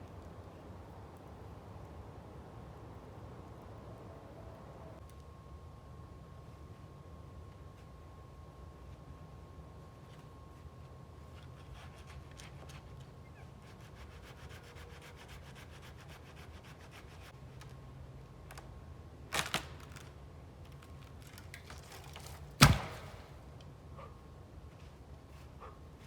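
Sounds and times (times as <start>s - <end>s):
sharp knocks: 22.6s - 23.3s.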